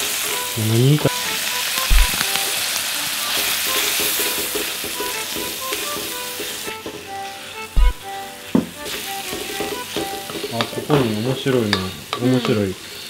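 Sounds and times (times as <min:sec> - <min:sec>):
filling sizzling in oil: 0:00.0 - 0:13.0
dull knock: 0:01.9 - 0:02.2, 0:07.8 - 0:08.7.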